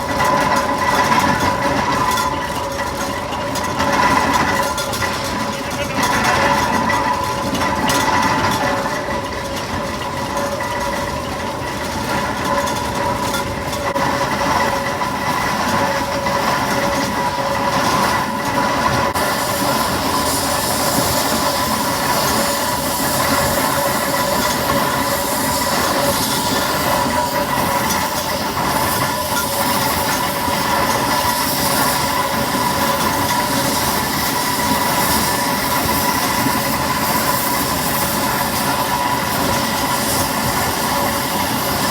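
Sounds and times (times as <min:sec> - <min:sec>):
steam engine mechanical clatter: 0:00.0 - 0:41.9
steady whine: 0:13.9 - 0:41.9
steam hiss: 0:14.0 - 0:41.9.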